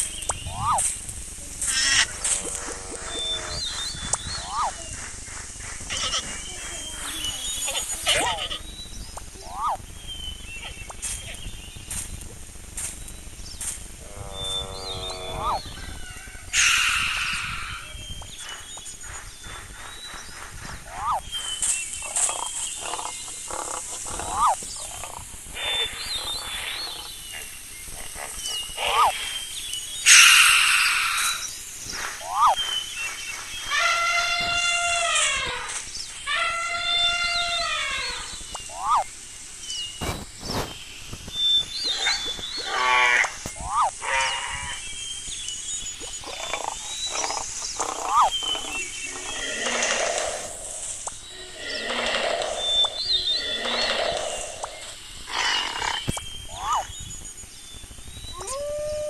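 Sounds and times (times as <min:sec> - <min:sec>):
high thin whistling calls: 0:00.0 - 0:59.0
rising and falling animal call: 0:00.4 - 0:00.9, 0:01.6 - 0:08.7, 0:09.3 - 0:09.9, 0:14.0 - 0:18.2, 0:20.8 - 0:21.3, 0:22.0 - 0:29.2, 0:32.2 - 0:32.6, 0:33.7 - 0:39.1, 0:41.8 - 0:44.9, 0:46.0 - 0:57.0, 0:58.3 - 0:59.0
long animal call: 0:05.9 - 0:08.7, 0:14.0 - 0:18.0, 0:36.3 - 0:39.1, 0:41.9 - 0:44.8, 0:58.3 - 0:59.0.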